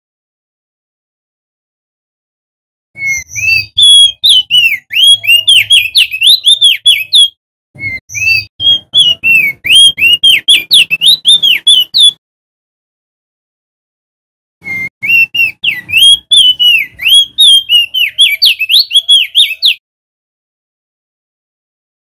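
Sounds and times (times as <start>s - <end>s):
bird singing whistled notes: 3.0s - 12.2s, 14.6s - 19.8s.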